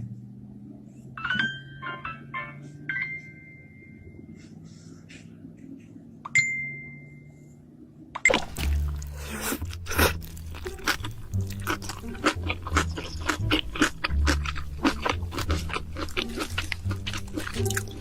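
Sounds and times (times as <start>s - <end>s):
background music: 1.2s - 4.6s, 8.2s - 18.0s
crunchy chewing: 8.6s - 18.0s.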